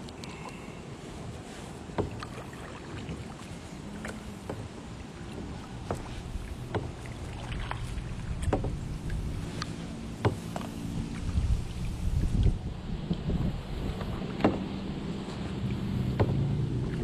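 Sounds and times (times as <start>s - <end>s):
water and wind noise: 0.0s - 17.0s
light knocks on boat: 1.9s - 2.5s, 4.0s - 13.3s, 13.9s - 17.0s
low rumble: 6.0s - 17.0s.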